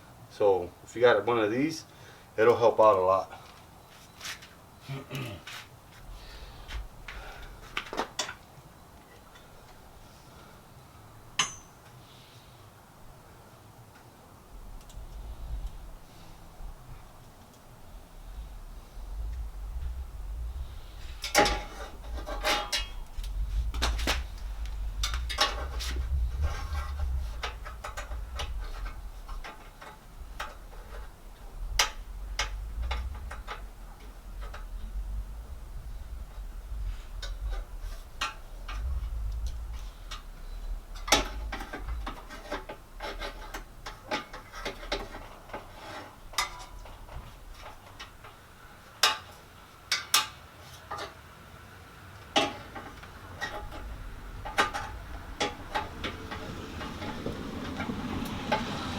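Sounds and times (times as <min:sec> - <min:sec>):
low rumbling handling noise: 0:06.0 - 0:10.5, 0:14.3 - 0:49.0, 0:52.5 - 0:58.9.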